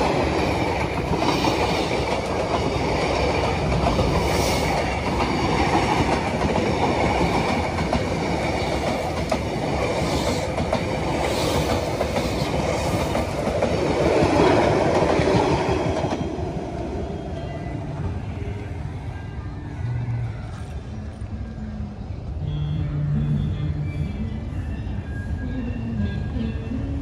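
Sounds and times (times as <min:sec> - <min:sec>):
train wheels clattering on rails: 0:00.0 - 0:16.6.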